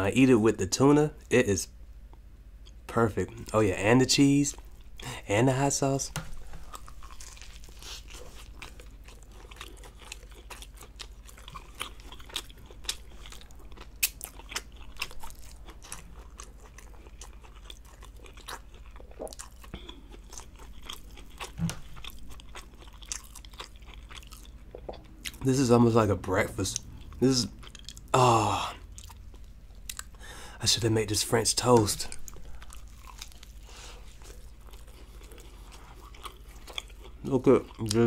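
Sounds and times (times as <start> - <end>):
chewing with wet mouth clicks: 6.7 - 25.5, 26.7 - 28.1, 28.9 - 30.2, 31.7 - 38.0.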